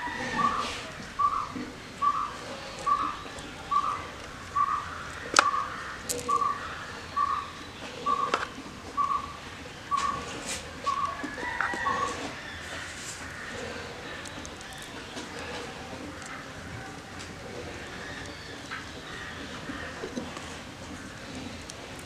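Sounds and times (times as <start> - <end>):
pod shells cracking: 1.2 - 6.6, 11.0 - 22.0.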